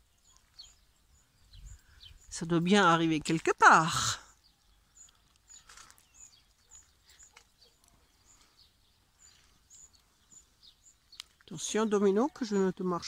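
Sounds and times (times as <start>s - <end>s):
small birds chirping: 0.0s - 13.0s
footsteps on dirt path: 5.0s - 11.4s.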